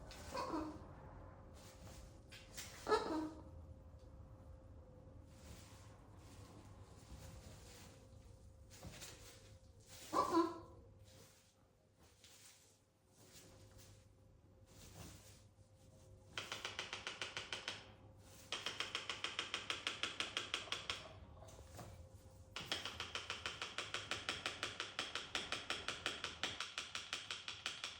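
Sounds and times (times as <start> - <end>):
parrot tapping on hard object: 16.3 - 21.2, 22.6 - 27.9.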